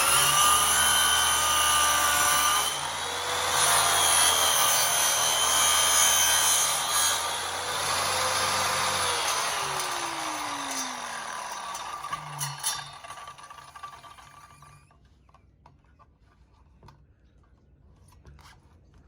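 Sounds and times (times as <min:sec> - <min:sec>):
power saw cutting wood: 0:00.0 - 0:14.9
saw blade spinning down: 0:00.0 - 0:14.9.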